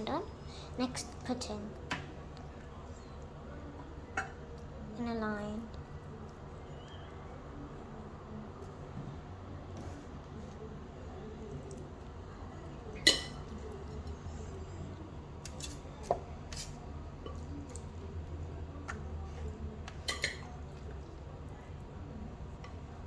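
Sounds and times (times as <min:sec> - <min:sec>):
kitchenware clinking: 0:13.0 - 0:13.6, 0:19.9 - 0:20.6.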